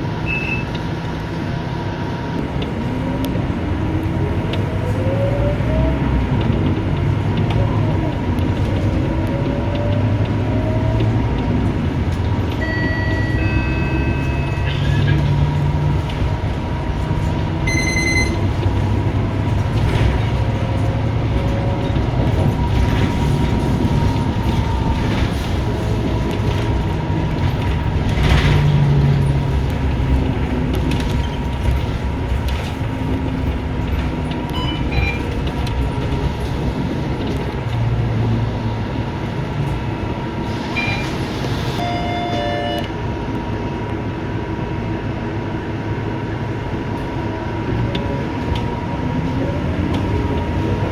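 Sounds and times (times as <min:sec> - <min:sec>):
bus engine and road rumble: 0:00.0 - 0:50.9
short electronic beeps: 0:12.6 - 0:15.1, 0:17.7 - 0:18.5, 0:34.6 - 0:35.2, 0:40.7 - 0:41.2, 0:41.8 - 0:42.9.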